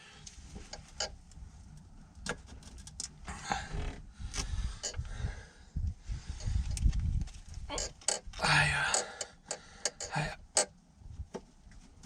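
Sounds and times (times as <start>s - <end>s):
engine parts clicking and tapping: 6.4s - 11.9s.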